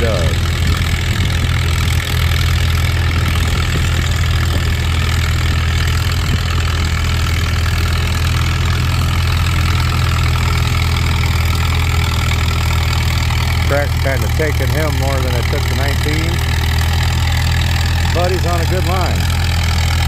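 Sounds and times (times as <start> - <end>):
tractor engine droning: 0.0 - 20.0.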